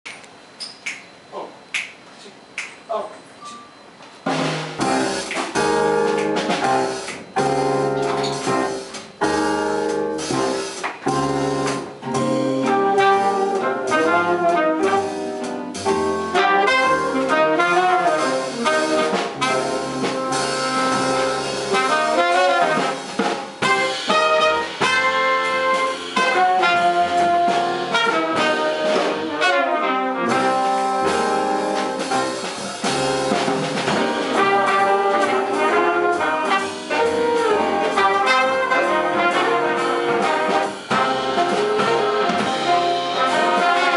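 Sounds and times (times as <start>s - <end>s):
jazz big band playing: 4.2s - 43.9s.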